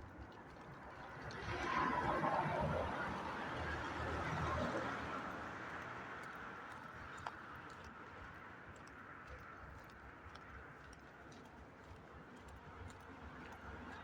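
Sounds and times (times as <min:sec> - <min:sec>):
outdoor background noise: 0:00.0 - 0:14.0
footsteps walking: 0:06.2 - 0:13.8.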